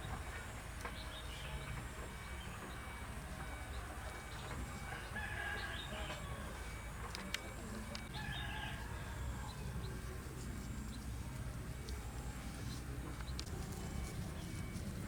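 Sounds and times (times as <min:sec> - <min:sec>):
rooster crowing: 0:04.8 - 0:06.6, 0:08.1 - 0:09.9.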